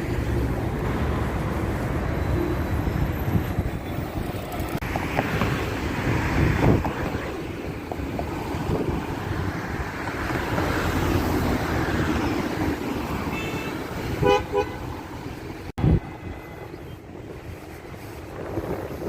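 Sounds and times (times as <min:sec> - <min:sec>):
road traffic: 0:00.0 - 0:19.0
car horn toots: 0:13.3 - 0:14.8.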